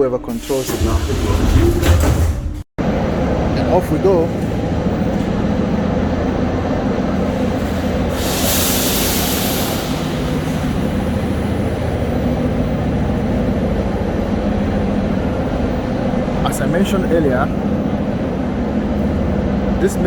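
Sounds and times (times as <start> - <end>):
metro train rumbling: 0.0 - 20.0
short hiss: 8.2 - 10.6.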